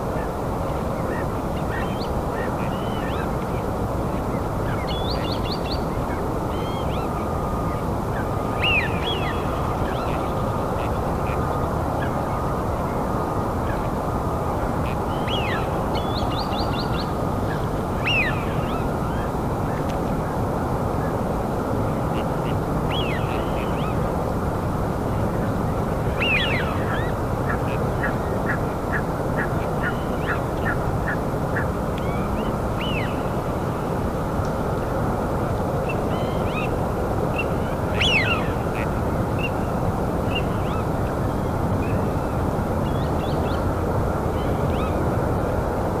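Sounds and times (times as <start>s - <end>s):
low rushing background noise: 0.0s - 46.0s
birds chirping: 35.8s - 43.7s.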